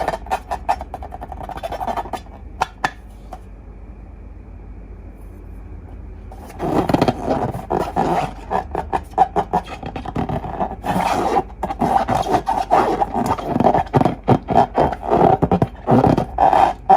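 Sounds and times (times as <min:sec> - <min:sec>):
slime squelching by hand: 0:06.4 - 0:16.9.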